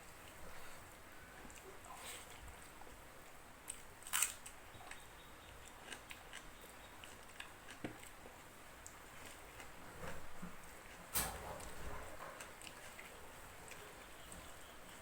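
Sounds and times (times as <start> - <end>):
person chewing food: 1.4 - 11.0.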